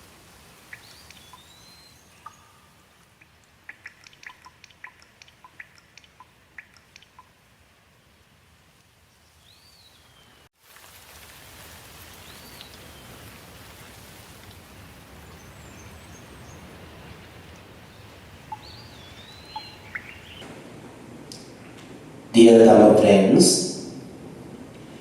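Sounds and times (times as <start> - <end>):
steady background hiss: 0.0 - 25.0
bird chirps: 0.7 - 3.1, 15.3 - 20.4.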